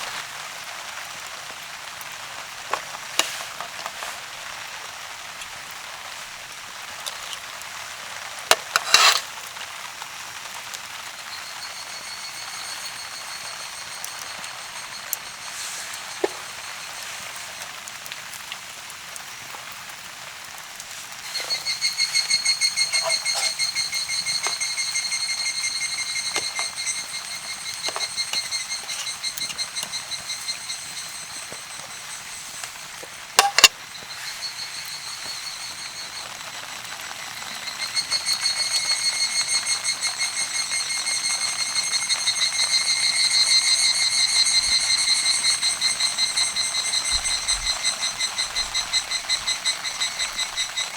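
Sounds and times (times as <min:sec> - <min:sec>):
rain hiss: 0:00.0 - 0:50.9
drops tapping: 0:21.2 - 0:34.2.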